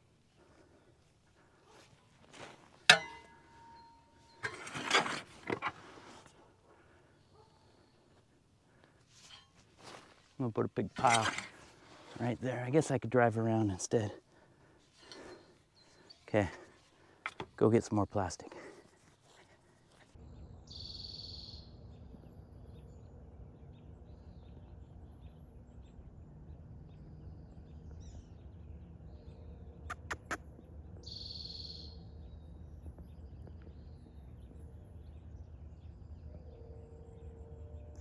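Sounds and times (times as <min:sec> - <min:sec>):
quick clicks: 0:29.9 - 0:30.4
high bird calls: 0:31.0 - 0:32.0.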